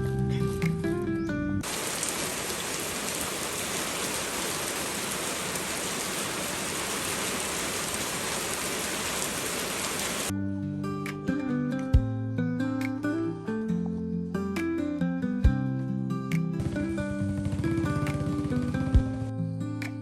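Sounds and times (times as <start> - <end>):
music: 0.0 - 1.6, 10.3 - 20.0
steady rain falling: 1.6 - 10.3.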